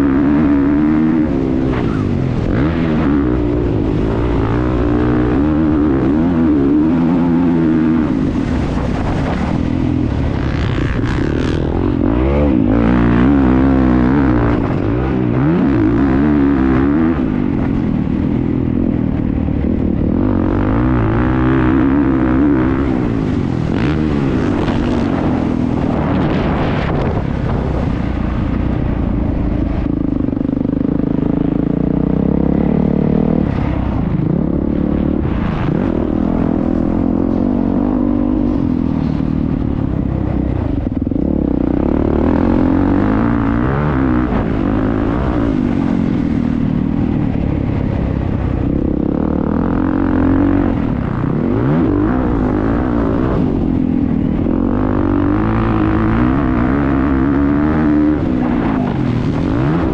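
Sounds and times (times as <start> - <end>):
motocross bike engine revving: 0.0 - 28.6, 29.7 - 59.9.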